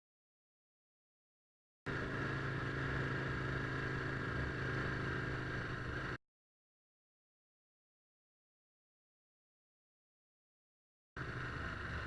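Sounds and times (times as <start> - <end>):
motorcycle engine running: 1.9 - 6.2, 11.2 - 12.0.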